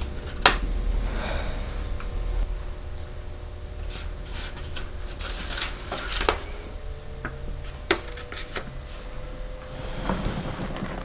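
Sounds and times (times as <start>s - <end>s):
sharp clicks: 0.0s - 2.6s, 8.2s - 9.1s, 9.8s - 11.0s
faint room hum: 0.0s - 2.8s, 3.6s - 11.0s.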